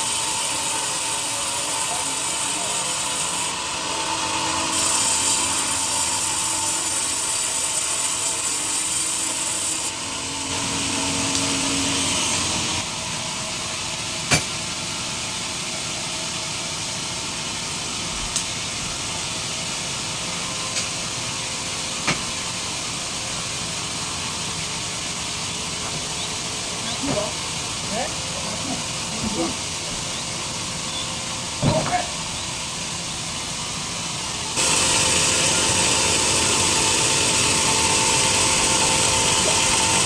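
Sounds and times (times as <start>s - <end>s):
saw blade cutting log: 0.0s - 12.9s, 34.6s - 40.0s
sharp machine knocks: 14.3s - 14.5s.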